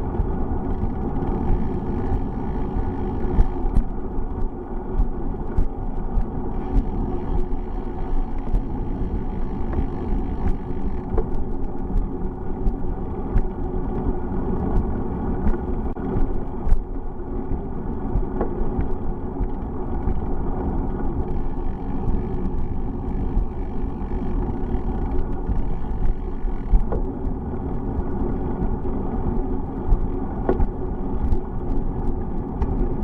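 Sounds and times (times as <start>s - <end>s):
bicycle clicks and rattles: 0.0s - 33.0s
bicycle road noise: 0.0s - 33.0s.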